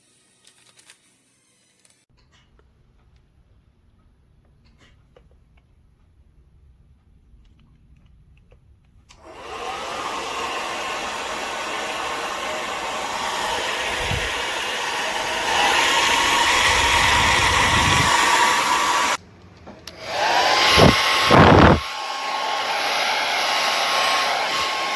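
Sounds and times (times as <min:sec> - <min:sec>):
hair dryer blowing with motor whine: 0:09.2 - 0:19.2, 0:19.9 - 0:24.9.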